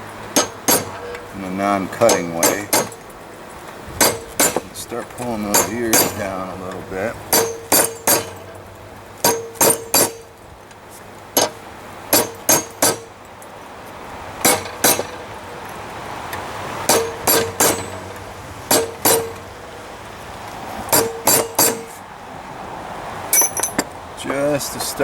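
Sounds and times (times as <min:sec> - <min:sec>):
hammer striking metal on anvil: 0:00.3 - 0:03.2, 0:04.0 - 0:08.6, 0:09.2 - 0:10.4, 0:11.4 - 0:13.2, 0:14.4 - 0:15.3, 0:16.8 - 0:19.6, 0:20.9 - 0:22.0, 0:23.3 - 0:23.9.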